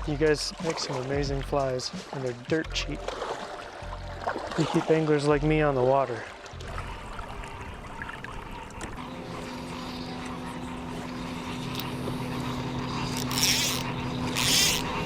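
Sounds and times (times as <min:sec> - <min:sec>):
drone propellers humming: 0:06.4 - 0:15.0.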